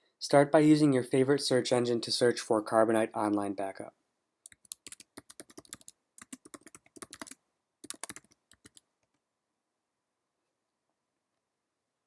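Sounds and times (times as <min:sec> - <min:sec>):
computer keyboard typing: 0:04.5 - 0:08.9.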